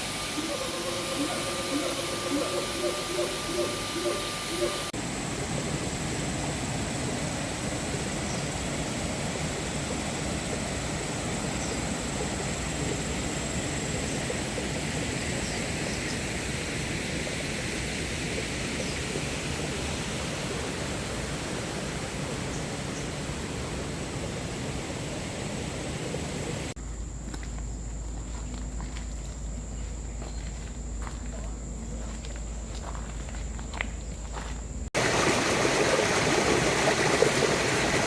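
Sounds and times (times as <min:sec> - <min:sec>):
high-pitched drone: 0:00.0 - 0:05.8.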